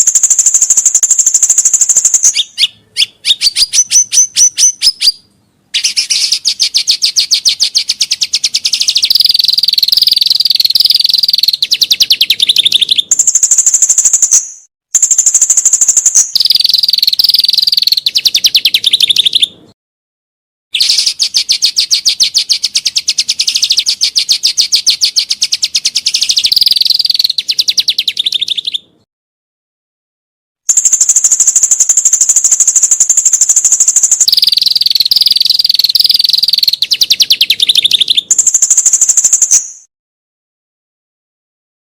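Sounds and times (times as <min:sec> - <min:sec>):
songbird singing fast high notes: 0:00.0 - 0:19.5, 0:20.8 - 0:28.9, 0:30.7 - 0:39.9.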